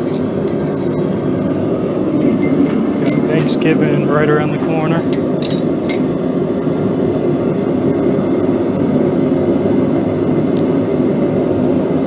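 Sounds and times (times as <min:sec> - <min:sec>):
metallic clinks of steel: 0:00.0 - 0:01.1, 0:02.2 - 0:03.7, 0:05.0 - 0:06.2.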